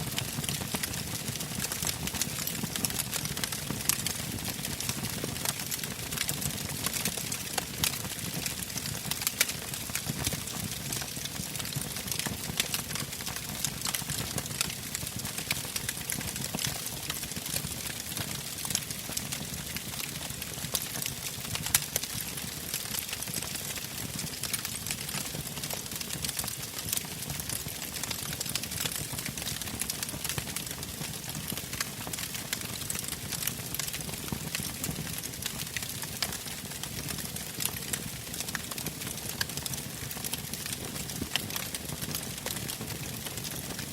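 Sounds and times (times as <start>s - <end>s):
burning logs crackling: 0.4s - 30.3s, 30.9s - 43.8s.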